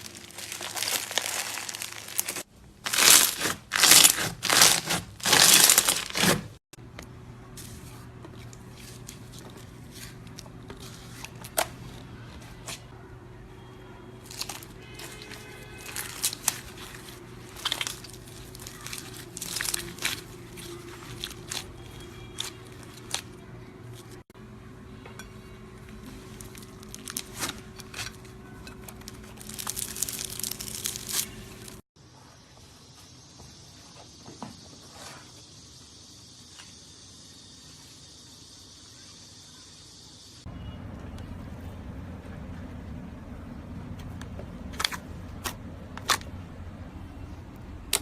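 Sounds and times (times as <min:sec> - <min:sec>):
slime crackling and popping: 0:00.0 - 0:06.4, 0:14.3 - 0:23.3, 0:26.2 - 0:28.2, 0:29.0 - 0:31.8.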